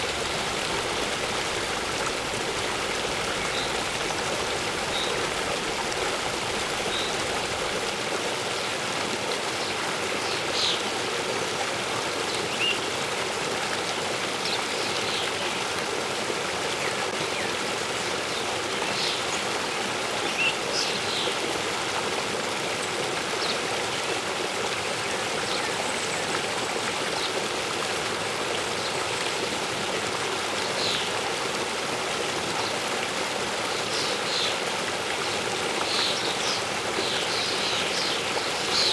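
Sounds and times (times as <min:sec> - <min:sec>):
waterfall rushing: 0:00.0 - 0:08.1.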